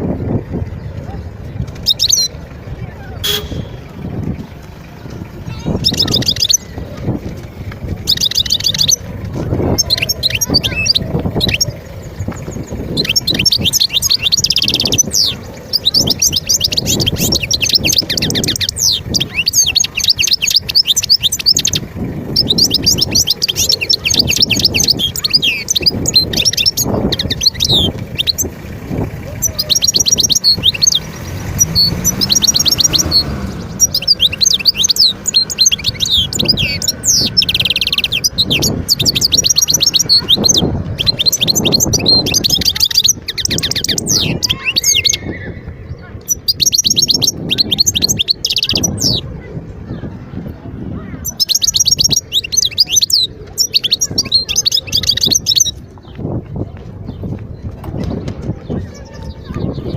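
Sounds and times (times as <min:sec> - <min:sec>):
finch twittering song: 0:00.0 - 0:59.9.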